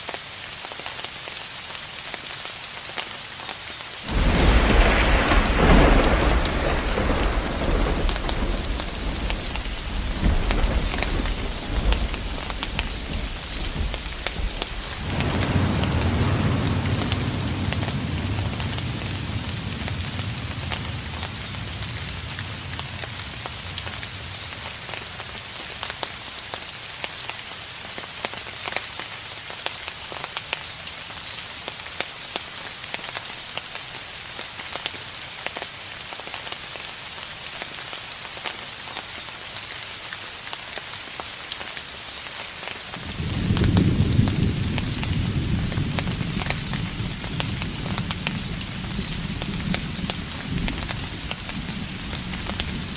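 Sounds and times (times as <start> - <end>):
steady rain pattering: 0.0 - 52.9
distant thunder rumble: 4.1 - 25.3, 43.0 - 52.9.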